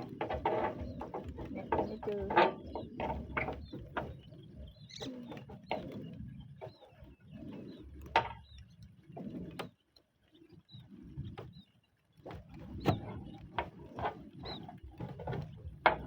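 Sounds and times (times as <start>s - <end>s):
roof tiles knocking and clattering: 0.0s - 4.3s, 14.0s - 16.0s.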